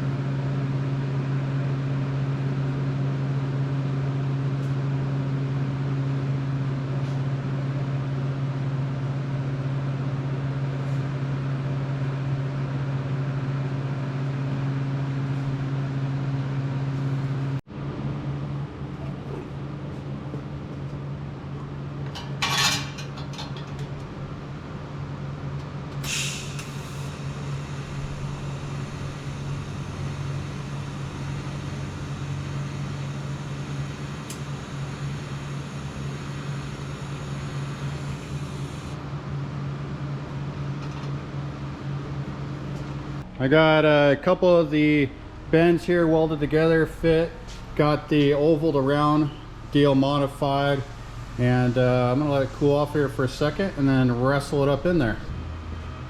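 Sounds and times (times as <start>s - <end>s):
quieter hum: 9.5s - 56.0s
machine hum buzzing: 23.9s - 56.0s.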